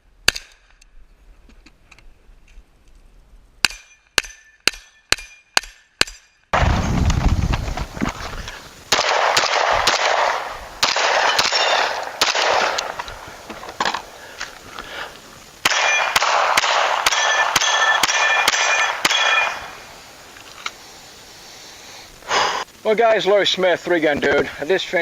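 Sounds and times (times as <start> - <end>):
pistol firing fast shots: 8.9 - 13.0, 15.6 - 19.7
steel plates clanging: 11.2 - 12.0.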